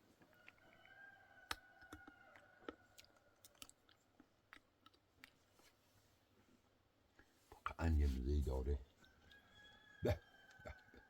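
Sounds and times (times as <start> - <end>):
person chewing: 0.0 - 5.8.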